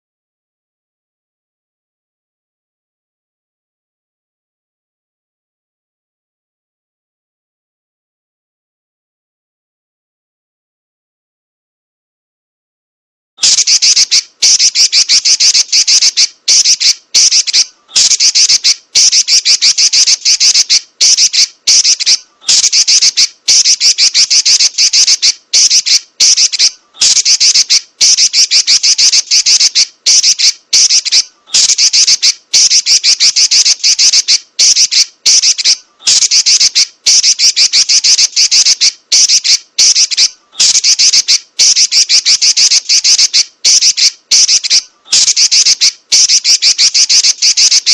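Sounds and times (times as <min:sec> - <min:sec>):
bird chattering in rapid rolls: 0:13.4 - 0:47.9.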